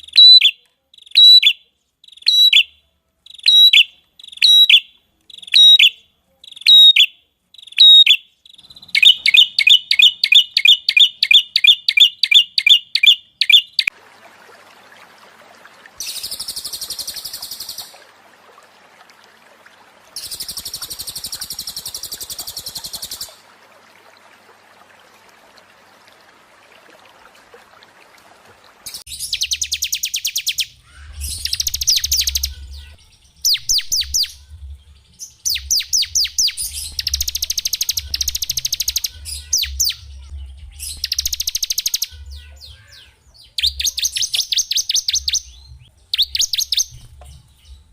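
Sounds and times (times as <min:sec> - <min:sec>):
songbirds chirping: 0:00.0 - 0:47.9
bird chattering: 0:03.3 - 0:13.9
faint hiss: 0:14.0 - 0:29.1.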